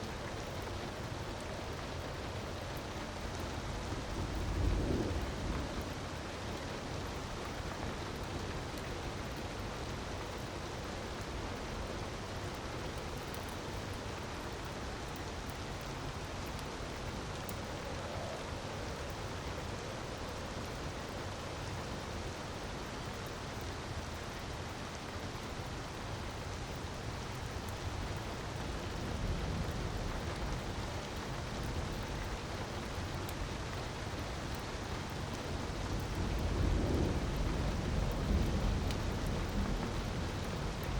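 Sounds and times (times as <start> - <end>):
faint crackles: 0.0 - 24.5.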